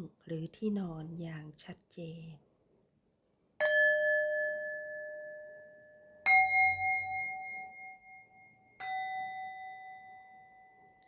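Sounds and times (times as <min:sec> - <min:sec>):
metal singing bowl ringing: 0:03.6 - 0:11.0.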